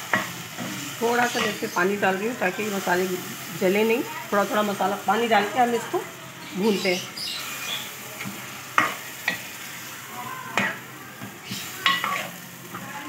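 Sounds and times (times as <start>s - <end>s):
food sizzling in a metal pot: 0.0s - 13.0s
spoon stirring and scraping: 11.4s - 13.0s.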